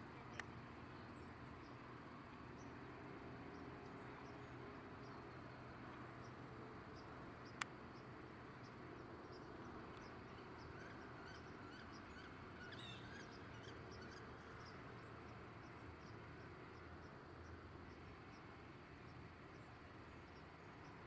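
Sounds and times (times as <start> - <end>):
crickets chirping: 0.0 - 21.0
faint bird calls: 10.0 - 14.9.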